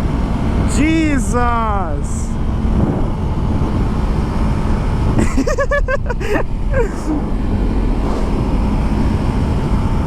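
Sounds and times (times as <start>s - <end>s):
motorcycle engine at speed: 0.0s - 5.6s, 6.9s - 10.0s
person laughing: 5.2s - 7.2s
wind rushing: 6.4s - 10.0s.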